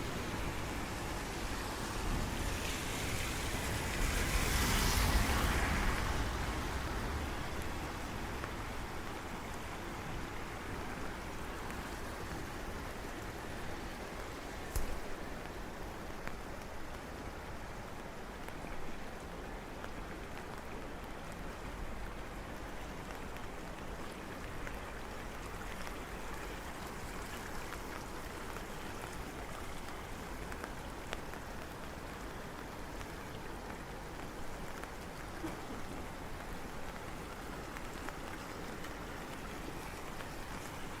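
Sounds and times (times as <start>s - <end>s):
steady rain falling: 0.0s - 41.0s
raindrop ticks: 22.0s - 41.0s.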